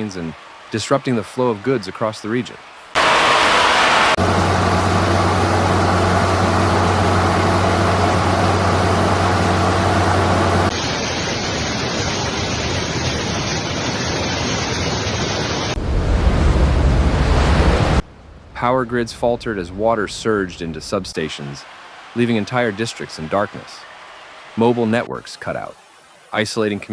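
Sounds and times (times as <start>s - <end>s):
floodwater rushing: 3.0s - 10.7s
low mechanical hum: 4.2s - 10.7s.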